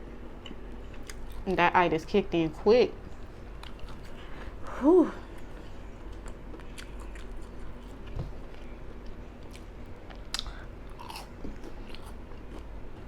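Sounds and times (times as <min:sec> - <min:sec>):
person chewing food: 0:00.4 - 0:01.4, 0:03.5 - 0:04.6, 0:05.3 - 0:13.0.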